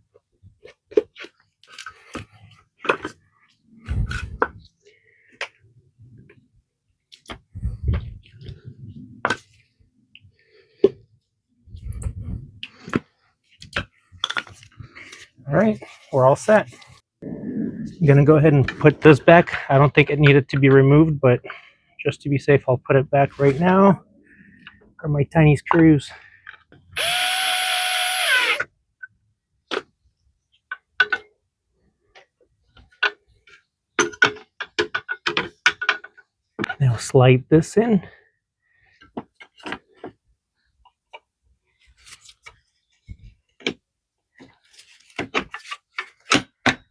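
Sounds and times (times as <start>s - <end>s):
low rubbing and rumbling: 17.2s - 19.1s
power drill whirring: 27.0s - 28.7s
tools clicking and knocking: 32.8s - 36.8s.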